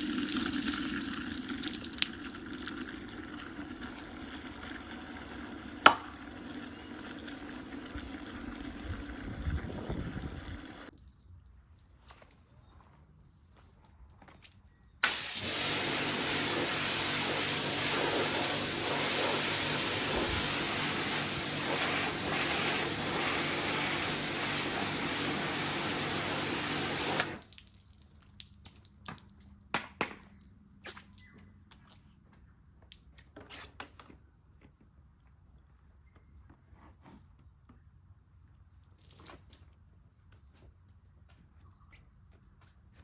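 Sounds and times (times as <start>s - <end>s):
water dripping: 10.8s - 12.4s, 27.4s - 29.6s
pressure washer spraying water: 15.0s - 27.4s.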